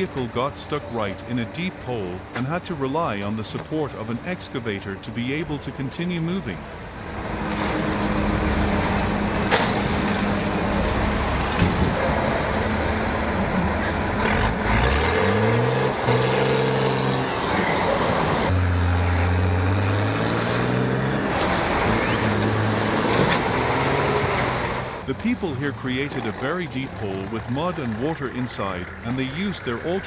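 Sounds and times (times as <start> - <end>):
heavy vehicle engines under load: 0.0 - 30.0.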